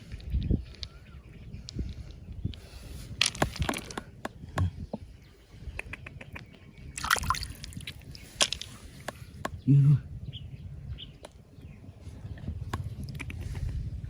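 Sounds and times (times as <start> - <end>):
water sloshing and splashing: 7.0 - 8.8.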